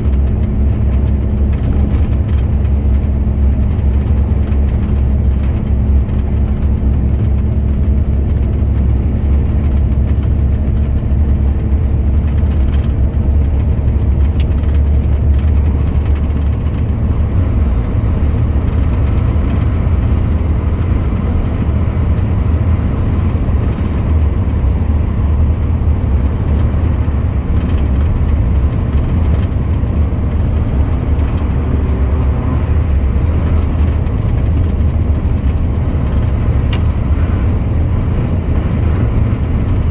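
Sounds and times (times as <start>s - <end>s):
truck engine low rumble: 0.0s - 39.9s.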